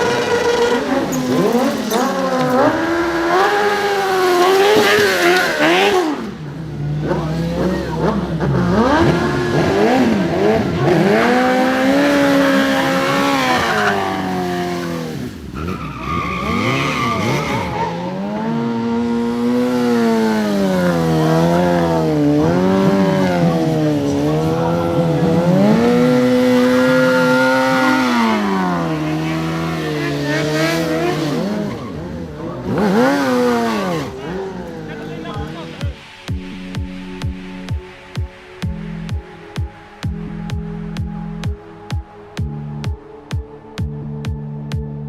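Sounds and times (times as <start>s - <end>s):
tyre squeal: 0.0s - 2.8s, 15.6s - 18.2s
motorcycle engine revving hard: 0.0s - 36.0s.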